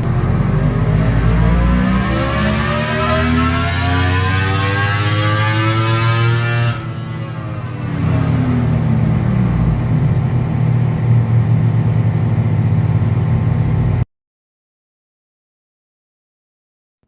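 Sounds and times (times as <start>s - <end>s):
motorcycle engine running: 0.0s - 4.8s, 5.4s - 14.0s.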